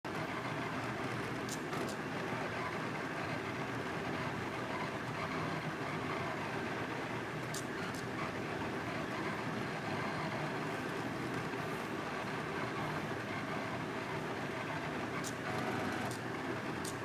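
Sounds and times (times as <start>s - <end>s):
stepper motors running: 7.4s - 17.0s.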